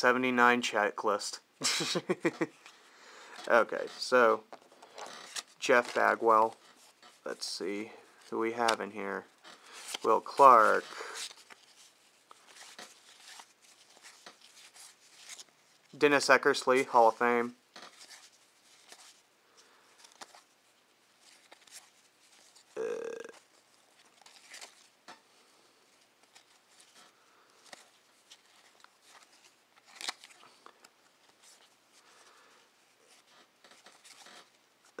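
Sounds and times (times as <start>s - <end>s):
trading cards rustling and clicking: 4.5s - 20.5s, 21.2s - 35.0s
murmured voice: 22.8s - 23.4s.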